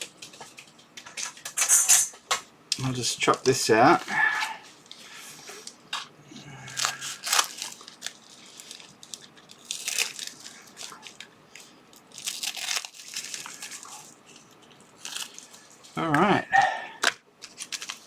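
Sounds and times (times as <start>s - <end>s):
plastic bag crinkling: 6.7s - 15.9s, 17.4s - 18.0s.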